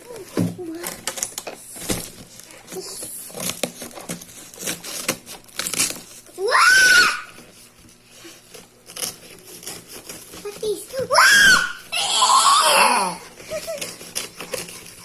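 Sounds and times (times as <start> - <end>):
toy packaging clicks and crinkling: 0.0 - 11.3, 13.2 - 15.0
child squealing: 6.4 - 7.4, 11.0 - 13.2.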